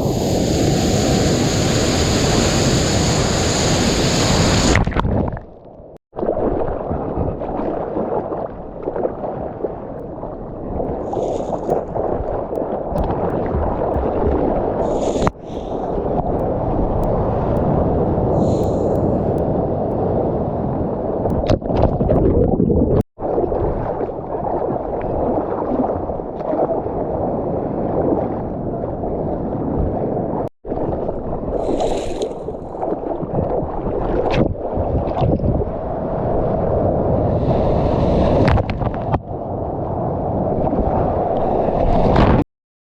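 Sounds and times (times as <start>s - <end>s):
water and wind rushing over microphone: 0.0s - 42.4s
knocks and splashes: 12.0s - 14.7s, 21.3s - 23.0s, 31.7s - 35.7s.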